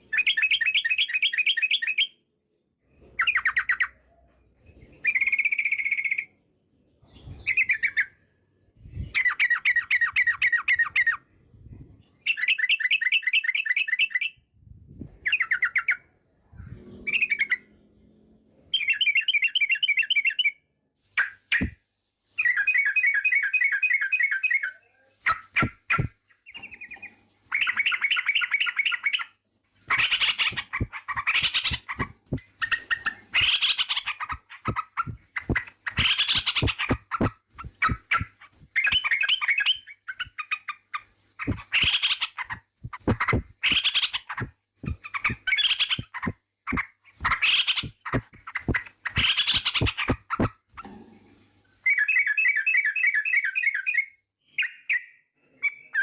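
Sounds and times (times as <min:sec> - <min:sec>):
bird chattering song: 0:00.0 - 0:02.2, 0:03.1 - 0:06.4, 0:07.0 - 0:08.3, 0:15.2 - 0:18.1, 0:18.7 - 0:20.6, 0:22.4 - 0:50.9.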